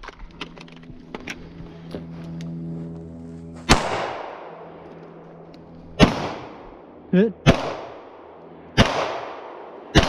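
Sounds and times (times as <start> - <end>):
rifle shot with echo: 3.7 - 4.6, 6.0 - 6.6, 7.4 - 10.0.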